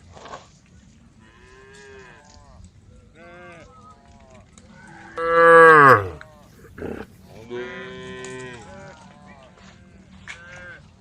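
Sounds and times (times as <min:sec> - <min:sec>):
cows mooing: 0:05.2 - 0:07.1.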